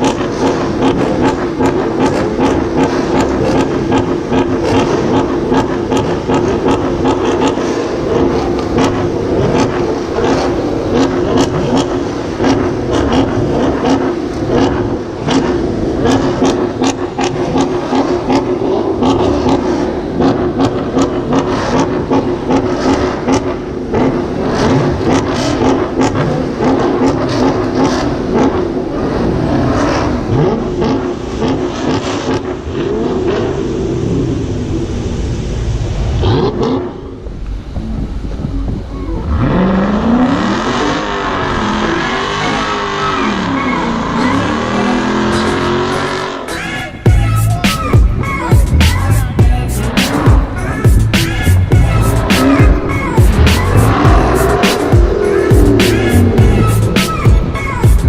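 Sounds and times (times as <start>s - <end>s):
car engine running: 0.0s - 32.8s, 47.1s - 58.0s
road noise: 0.0s - 58.0s.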